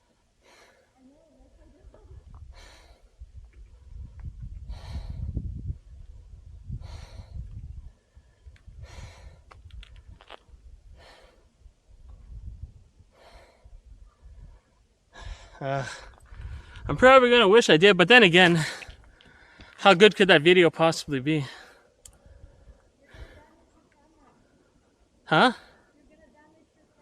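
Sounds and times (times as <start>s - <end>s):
man breathing heavily: 0.3s - 1.0s, 2.3s - 10.2s, 10.8s - 11.6s, 13.0s - 16.9s, 18.5s - 19.9s, 21.4s - 23.6s.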